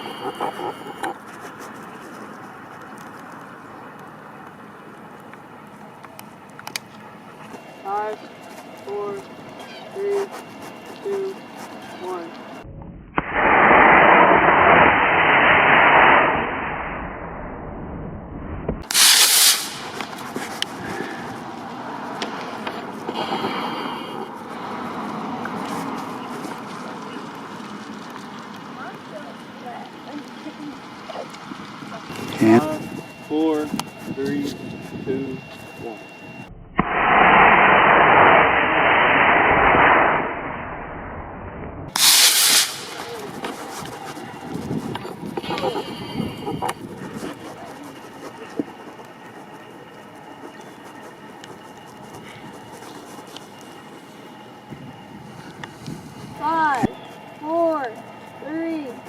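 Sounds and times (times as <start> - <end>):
loud rush of noise: 13.2 - 23.9, 36.8 - 47.4
short bright burst of noise: 18.8 - 20.0, 41.9 - 43.2
rocket motor rushing hiss: 18.8 - 20.8, 41.9 - 47.2
rocket motor roaring: 35.8 - 50.6.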